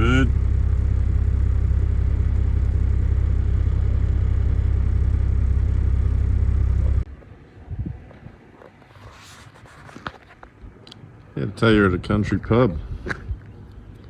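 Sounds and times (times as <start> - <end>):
diesel engine droning: 0.0 - 7.1
road noise: 0.0 - 14.0.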